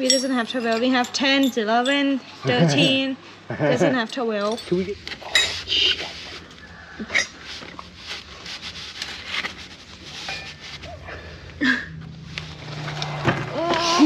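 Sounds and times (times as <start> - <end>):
metal tools clinking: 0.0 - 3.0, 4.0 - 5.7.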